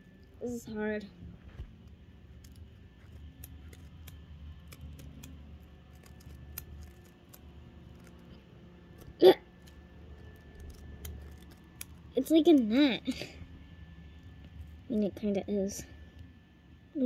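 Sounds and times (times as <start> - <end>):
scissors clicking on mesh toy: 2.4 - 8.3, 9.0 - 12.7.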